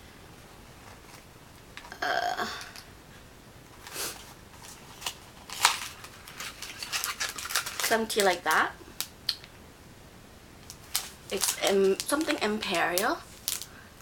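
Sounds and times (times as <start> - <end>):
packaging rustling and crinkling: 3.8 - 9.1, 10.6 - 13.7.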